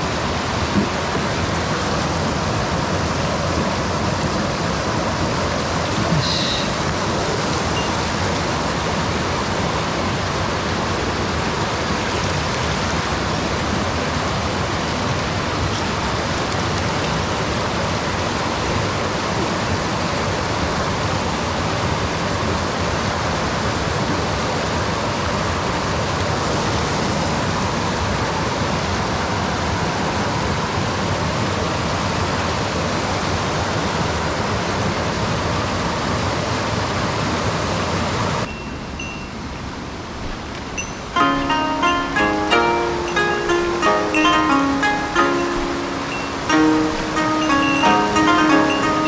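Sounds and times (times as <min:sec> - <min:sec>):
stream water rushing: 0:00.0 - 0:36.2, 0:37.3 - 0:49.0
faint high tone: 0:40.8 - 0:49.0.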